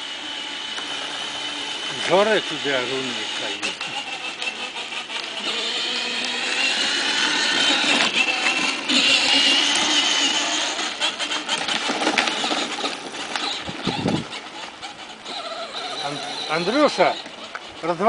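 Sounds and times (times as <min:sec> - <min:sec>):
electric motor whining: 0:00.0 - 0:18.0.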